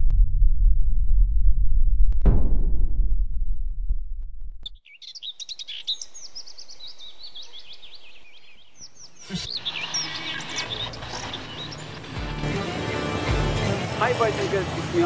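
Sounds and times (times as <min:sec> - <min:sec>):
deep rumble: 0:00.0 - 0:04.8
small birds chirping and twittering: 0:04.8 - 0:12.6.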